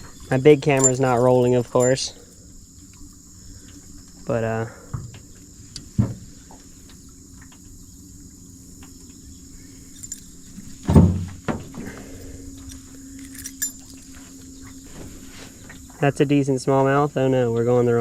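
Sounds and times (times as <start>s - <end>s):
insects droning: 0.0s - 18.0s
loud thump: 10.9s - 11.8s.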